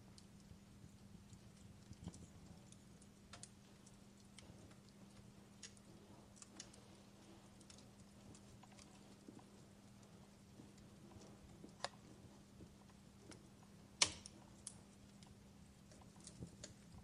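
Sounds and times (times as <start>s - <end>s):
steady low hum: 0.0s - 17.0s
wood fire crackling: 0.0s - 17.0s.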